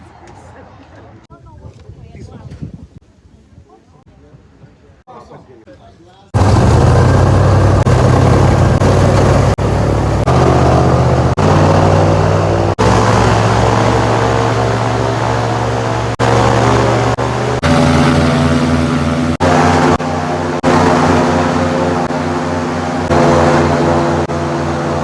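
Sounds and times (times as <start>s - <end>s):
airboat engine and propeller: 6.4s - 25.0s.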